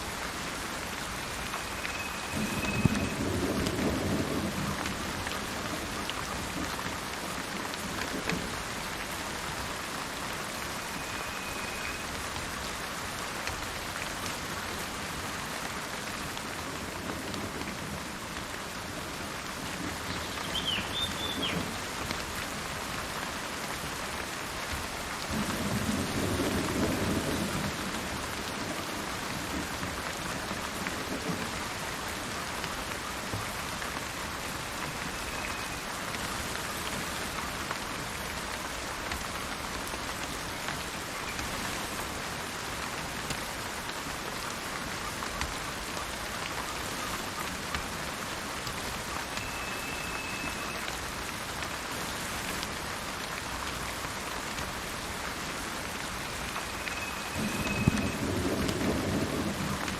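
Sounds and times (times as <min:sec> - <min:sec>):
steady rain in forest: 0:00.0 - 0:59.9
bird chirping: 0:20.1 - 0:21.6.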